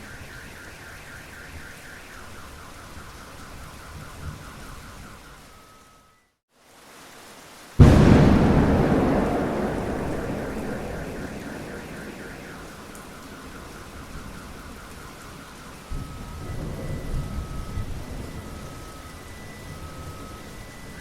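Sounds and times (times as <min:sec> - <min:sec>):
steady rain: 0:00.0 - 0:21.0
thunder rumbling: 0:07.8 - 0:15.2.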